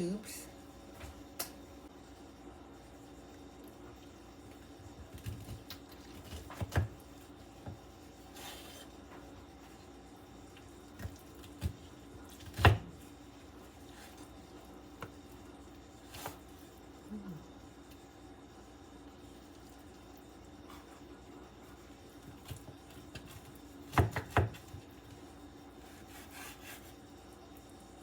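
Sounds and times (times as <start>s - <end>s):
knife cutting on board: 25.8s - 27.0s.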